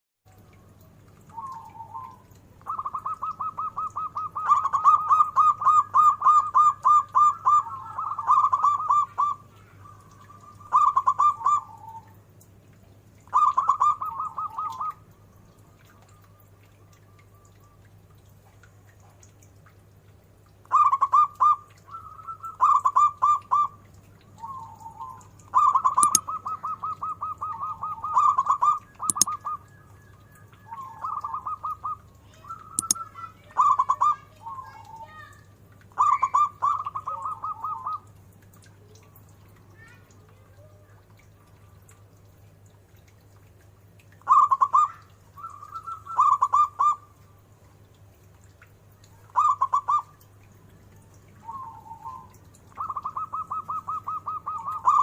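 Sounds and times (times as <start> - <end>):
dove cooing: 1.3 - 12.1, 13.3 - 15.0, 20.7 - 23.8, 24.4 - 29.6, 30.7 - 34.8, 36.0 - 38.0, 44.3 - 47.1, 51.4 - 55.0
sharp clicks: 26.0 - 26.2, 29.1 - 29.3, 32.8 - 33.0.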